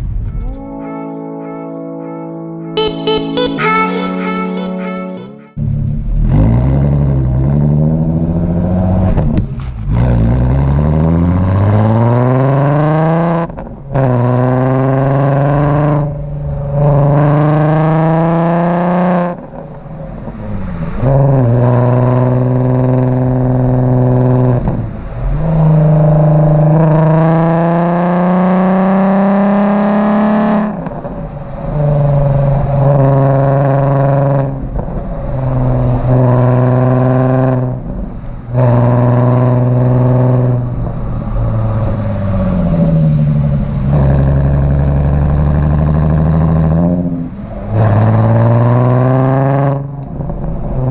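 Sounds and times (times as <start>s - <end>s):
car engine revving through gears: 5.6s - 50.9s.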